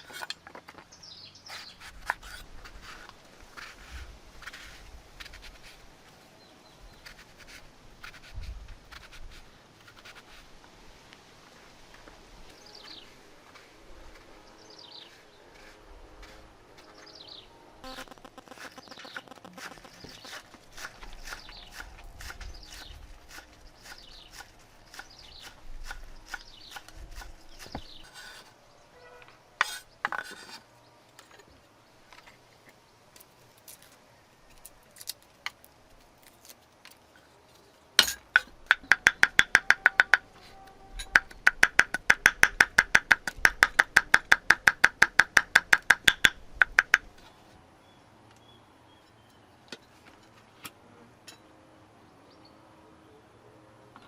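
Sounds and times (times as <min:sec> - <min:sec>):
birds chirping: 0:00.0 - 0:04.6, 0:12.0 - 0:34.9, 0:46.0 - 0:49.9
scattered knocks: 0:38.3 - 0:40.3, 0:41.0 - 0:47.1.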